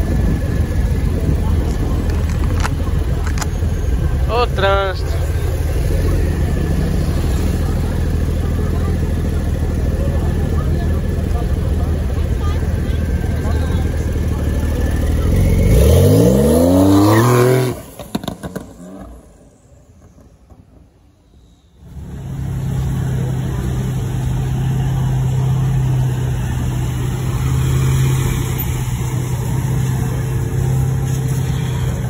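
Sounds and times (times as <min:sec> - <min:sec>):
low engine hum: 0:00.0 - 0:32.0
street noise: 0:00.0 - 0:32.0
sports car engine revving: 0:05.0 - 0:19.2.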